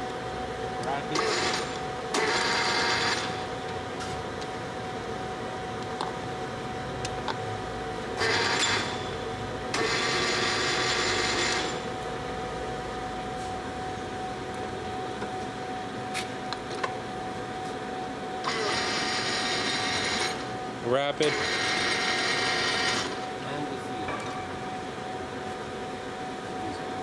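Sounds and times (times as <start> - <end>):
lathe humming and whining: 0.0 - 27.0
grinding mechanical noise: 0.8 - 4.6, 6.9 - 12.0, 18.4 - 23.8.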